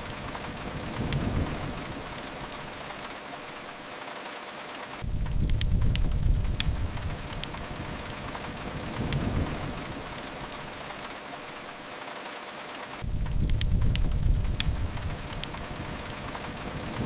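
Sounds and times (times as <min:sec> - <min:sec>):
fireplace fire crackling: 0:00.0 - 0:17.0
rain falling: 0:00.0 - 0:17.0
low rumble: 0:05.0 - 0:07.9, 0:13.0 - 0:15.9.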